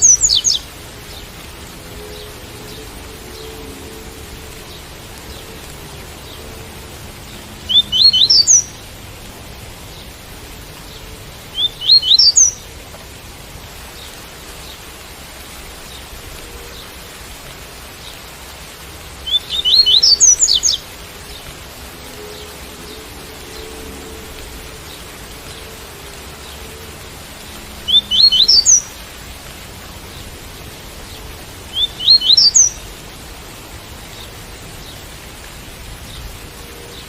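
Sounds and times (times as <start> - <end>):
bird singing rising notes: 0.0 - 0.7, 7.6 - 8.8, 11.5 - 12.6, 19.2 - 25.8, 27.7 - 29.0, 31.7 - 32.8
rain hiss: 0.0 - 37.0.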